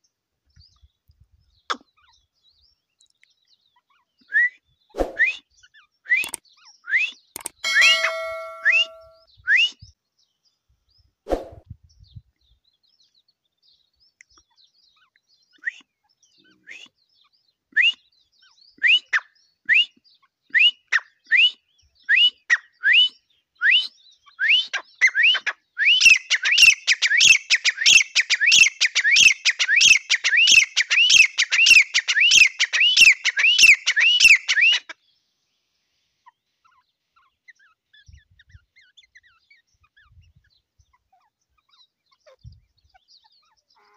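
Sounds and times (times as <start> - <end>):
bird calling with whistled notes: 4.0 - 10.0, 17.7 - 35.0.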